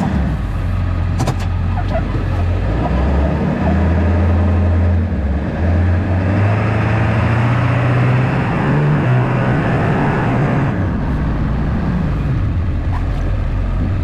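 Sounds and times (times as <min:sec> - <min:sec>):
diesel truck engine driving: 0:00.0 - 0:14.0
road noise: 0:00.0 - 0:14.0.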